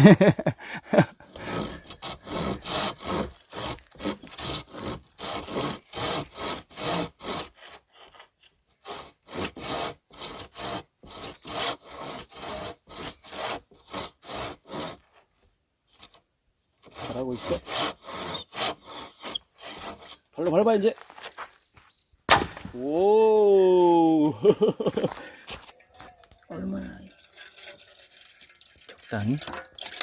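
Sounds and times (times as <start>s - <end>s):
hand saw cutting log: 1.2s - 15.3s, 16.8s - 20.9s.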